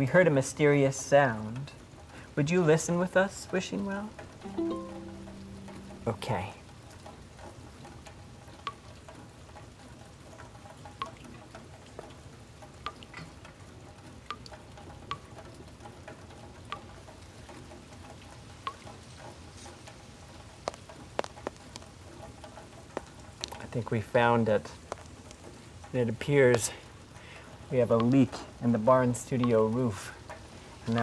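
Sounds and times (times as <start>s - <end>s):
rain on a metal roof: 0.0s - 31.0s
water drips ticking: 1.5s - 31.0s.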